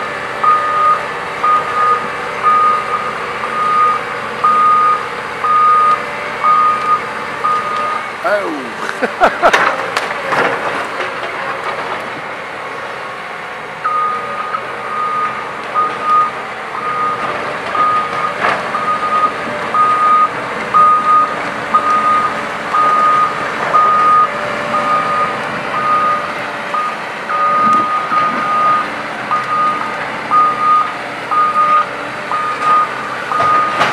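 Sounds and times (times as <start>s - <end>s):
heavy machinery running: 0.0s - 33.9s
backup alarm beeping: 0.4s - 8.0s, 13.8s - 17.2s, 17.8s - 33.8s.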